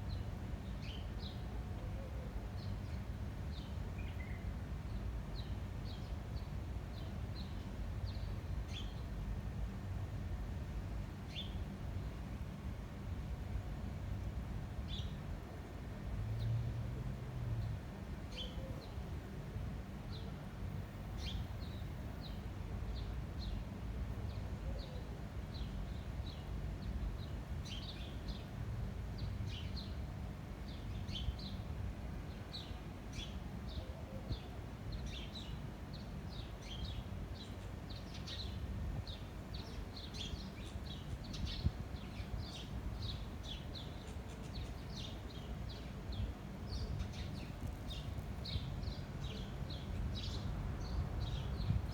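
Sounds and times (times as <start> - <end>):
low rumble of wind: 0.0 - 51.9
small birds chirping: 32.5 - 51.9.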